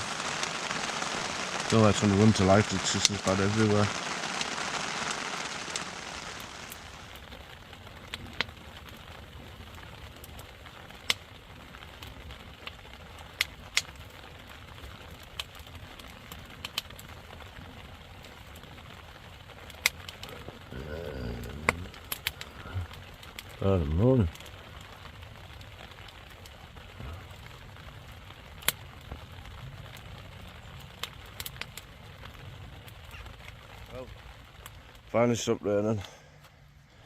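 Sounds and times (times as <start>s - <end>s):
sharp clicks and cracks: 0.0s - 7.4s, 10.2s - 11.3s, 11.9s - 14.2s, 14.8s - 17.1s, 19.6s - 20.4s, 21.4s - 25.0s, 28.6s - 29.2s, 30.7s - 35.1s
rain hiss: 0.0s - 37.0s.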